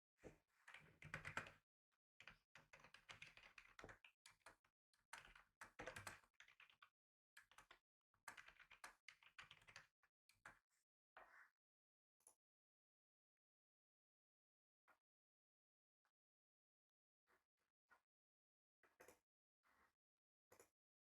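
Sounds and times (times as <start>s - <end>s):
typing on a computer keyboard: 0.7s - 1.6s, 2.2s - 9.9s.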